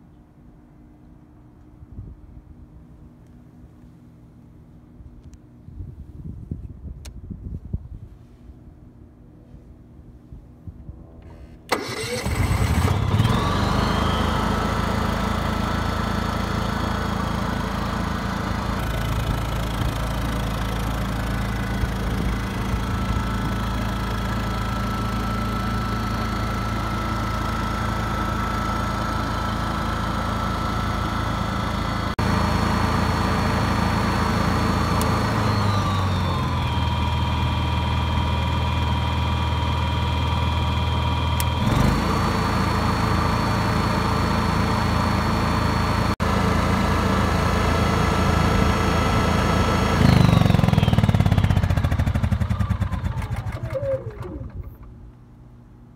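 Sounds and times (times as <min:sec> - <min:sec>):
click: 0:05.2 - 0:05.4
generator engine running: 0:11.3 - 0:55.9.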